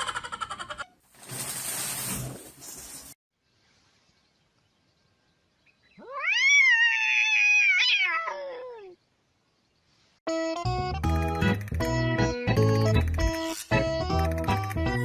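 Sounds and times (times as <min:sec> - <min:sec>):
cat meowing: 0:06.0 - 0:09.0.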